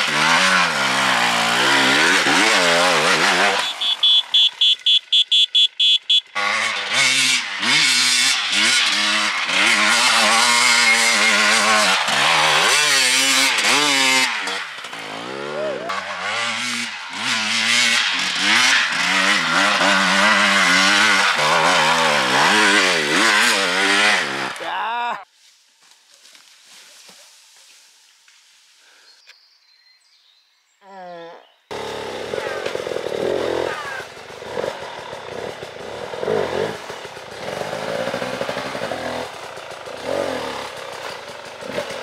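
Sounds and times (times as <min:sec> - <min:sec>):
motorcycle engine revving: 0:00.0 - 0:24.6, 0:31.7 - 0:42.0
short high-pitched beeps: 0:03.6 - 0:06.3.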